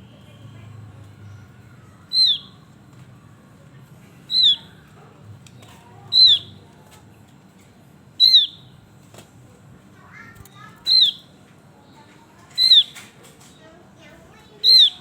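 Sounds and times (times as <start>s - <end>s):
bird calling high downward notes: 2.1s - 2.6s, 4.3s - 4.7s, 6.1s - 6.5s, 8.2s - 8.6s, 10.9s - 11.2s, 12.6s - 13.0s, 14.6s - 15.0s.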